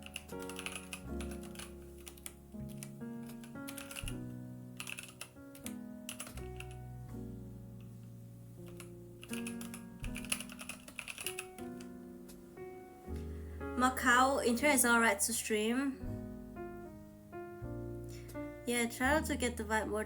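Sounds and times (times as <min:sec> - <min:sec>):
keyboard typing and clicking: 0:00.0 - 0:06.8, 0:08.6 - 0:12.4.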